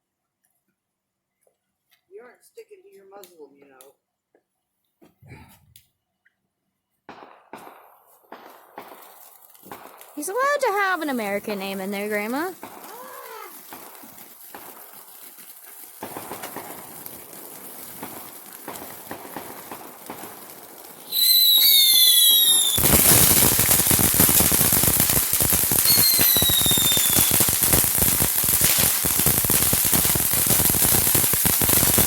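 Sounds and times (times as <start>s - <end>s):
fireworks crackling pops: 3.2s - 4.0s, 7.1s - 32.0s
firework whistle: 21.0s - 32.0s.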